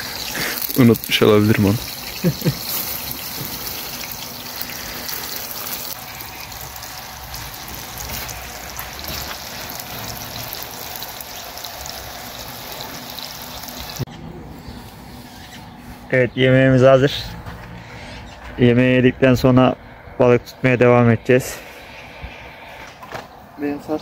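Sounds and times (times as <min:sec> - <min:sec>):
potatoes sizzling in hot oil: 0:00.0 - 0:14.1.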